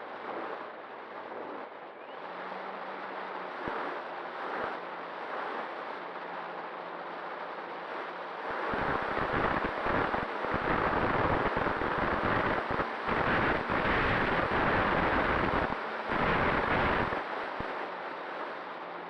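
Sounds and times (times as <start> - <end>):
faint steady hum: 0.0 - 19.0
wind buffeting microphone: 8.5 - 17.7.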